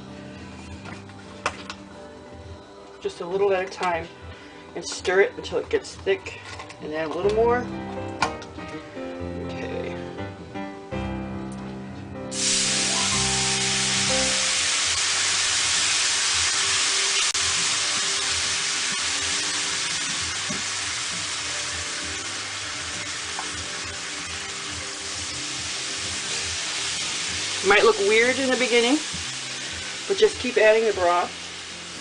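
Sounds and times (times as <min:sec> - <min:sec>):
liquid sizzling in hot pan: 0:12.3 - 0:32.0.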